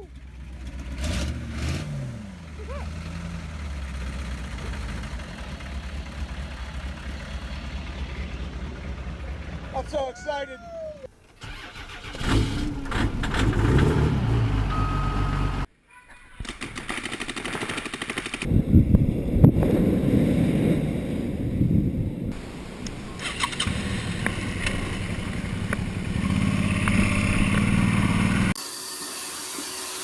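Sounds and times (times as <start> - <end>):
diesel engine revving and idling: 0.0 - 9.9, 11.4 - 15.7, 22.4 - 28.6.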